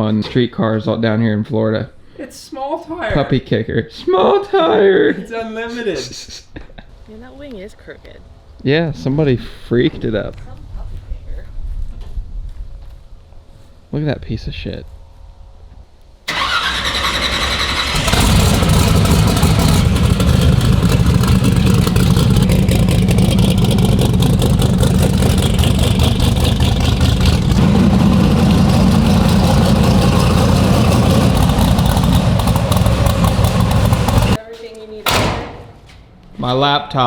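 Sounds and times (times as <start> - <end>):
race car engine idling: 16.3 - 34.4.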